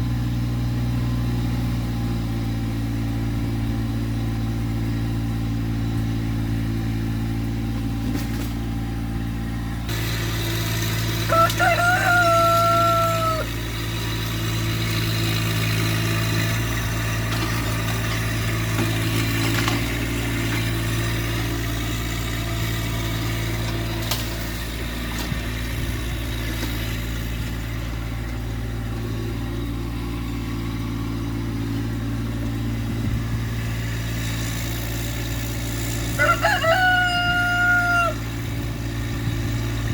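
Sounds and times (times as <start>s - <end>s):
tractor diesel engine running: 0.0s - 39.9s
rooster crowing: 11.1s - 13.7s, 36.1s - 38.4s.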